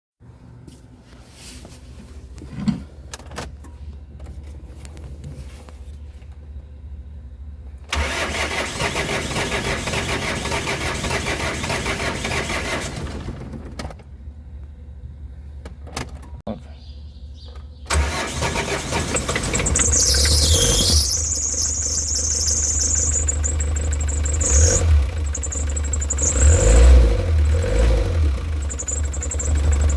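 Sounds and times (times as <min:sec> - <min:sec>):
diesel engine starter cranking: 0:07.8 - 0:14.1, 0:17.9 - 0:29.9.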